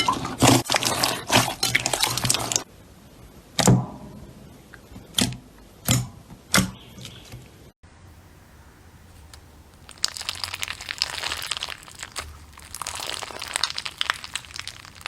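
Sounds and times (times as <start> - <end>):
slime crackling and popping: 9.1 - 15.0.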